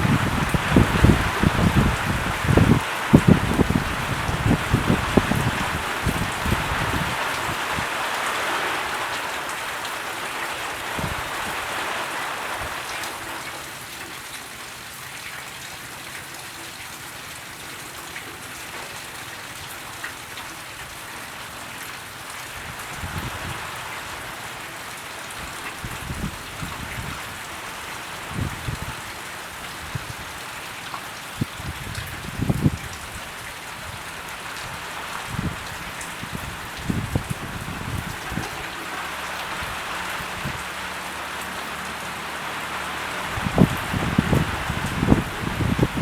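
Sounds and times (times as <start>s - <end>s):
rain hissing: 0.0s - 15.1s, 20.2s - 46.0s.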